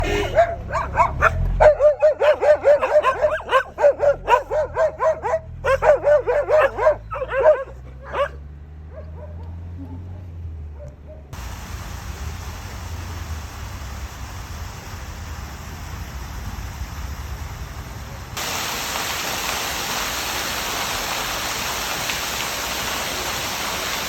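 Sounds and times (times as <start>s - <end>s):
dog barking: 0.0s - 11.4s
steady low hum: 11.4s - 18.4s.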